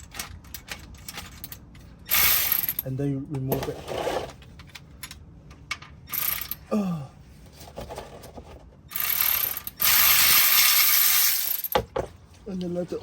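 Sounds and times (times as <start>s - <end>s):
ratchet wrench clicking: 2.1s - 2.8s, 6.1s - 6.6s, 8.9s - 11.7s.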